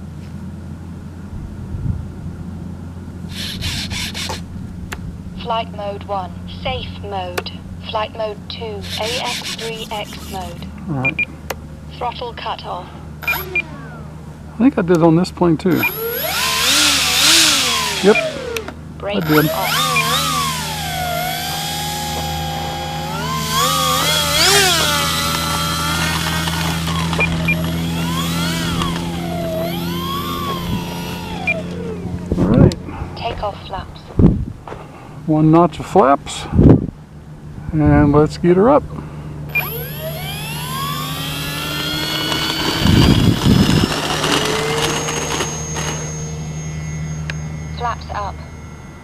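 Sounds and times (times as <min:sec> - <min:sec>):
model plane electric motor whine: 0:03.3 - 0:04.6, 0:08.8 - 0:10.7, 0:13.2 - 0:14.4, 0:15.7 - 0:32.8, 0:39.5 - 0:49.0
short beeps: 0:15.8 - 0:16.0, 0:19.2 - 0:20.4, 0:30.2 - 0:31.7, 0:44.5 - 0:49.0.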